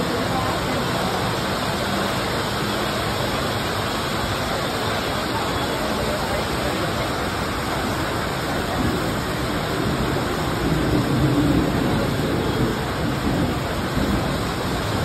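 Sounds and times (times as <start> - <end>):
heavy rain hissing: 0.0 - 15.0.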